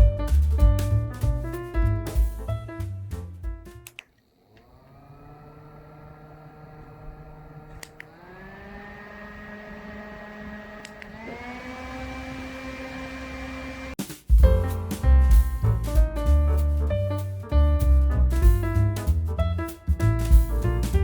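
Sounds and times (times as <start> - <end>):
fan switch click: 3.8 - 4.7, 6.8 - 8.2, 10.8 - 11.2
fan motor whining: 3.8 - 14.0.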